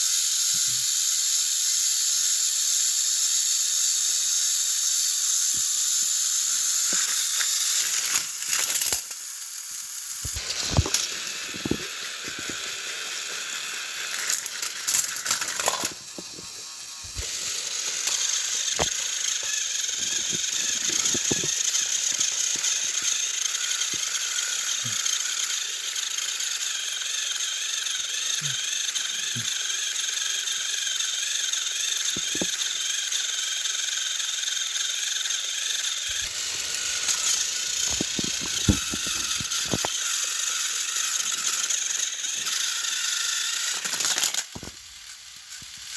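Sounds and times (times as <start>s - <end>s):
toy train motors whirring: 0.0s - 45.9s
plastic clicks and rattles: 32.1s - 32.6s, 36.1s - 40.0s.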